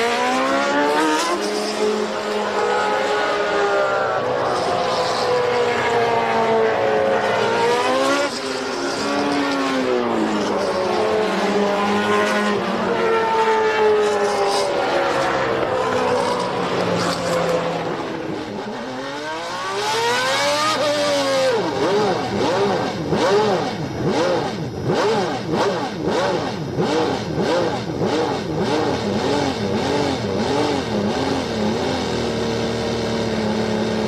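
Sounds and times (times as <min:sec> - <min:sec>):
racing car engines passing: 0:00.0 - 0:31.8
engine revving: 0:00.0 - 0:34.0.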